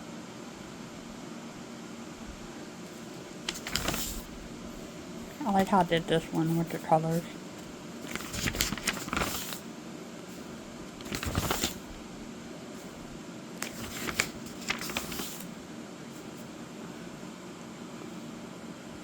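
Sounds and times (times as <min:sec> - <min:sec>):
book pages turning: 0:03.4 - 0:04.3, 0:05.4 - 0:07.3, 0:08.0 - 0:09.6, 0:10.9 - 0:11.9, 0:13.6 - 0:15.5.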